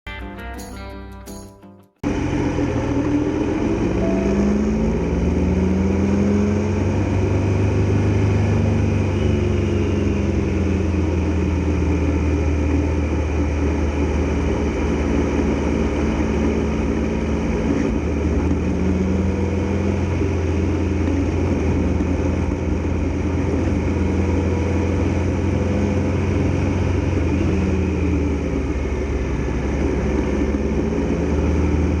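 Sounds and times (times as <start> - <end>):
motorcycle engine running: 2.0 - 32.0
wind and road noise: 2.0 - 32.0.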